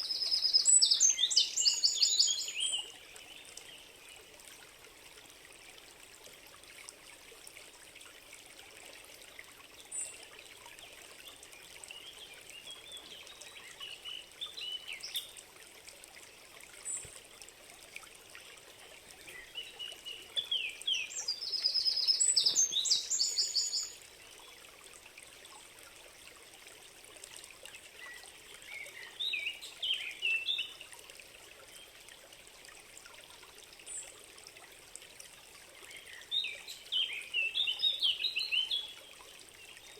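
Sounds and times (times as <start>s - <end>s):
songbirds singing: 0.0s - 4.0s, 9.8s - 15.4s, 19.1s - 24.0s, 28.0s - 30.8s, 35.8s - 39.9s
stream trickling: 0.0s - 39.9s.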